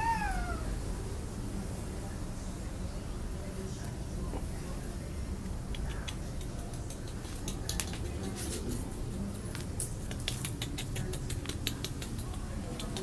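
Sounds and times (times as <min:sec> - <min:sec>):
light sharp clicks and taps: 0:05.4 - 0:13.0.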